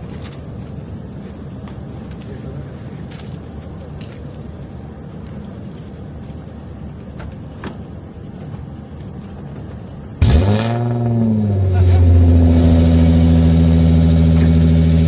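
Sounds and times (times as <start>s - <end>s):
car engine starting and revving: 10.2s - 15.0s.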